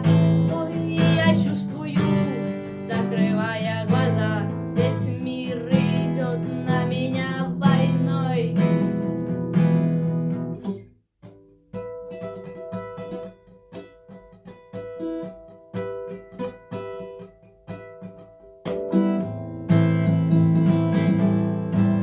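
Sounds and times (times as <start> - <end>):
acoustic guitar chord strummed: 0.0 - 22.0.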